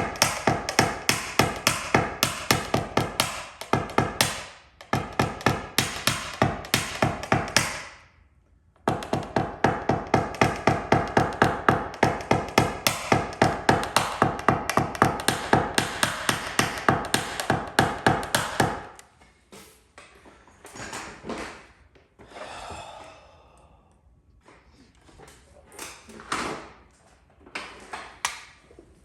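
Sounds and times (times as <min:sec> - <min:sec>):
rapid hammer taps on sheet metal: 0:00.0 - 0:08.0, 0:08.9 - 0:19.0.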